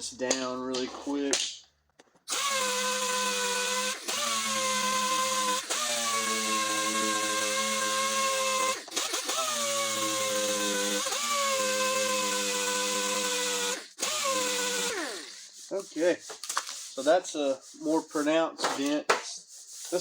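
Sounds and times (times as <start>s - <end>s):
electric sander on metal: 2.4s - 15.6s.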